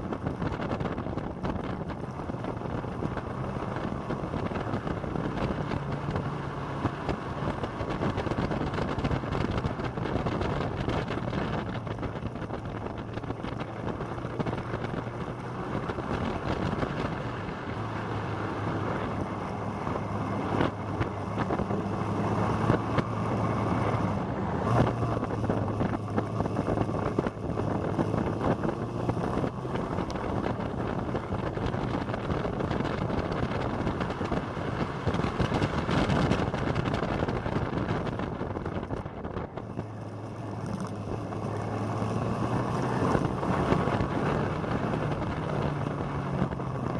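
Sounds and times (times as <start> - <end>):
motorcycle engine running: 0.0 - 46.9
wind noise on microphone: 0.0 - 46.9.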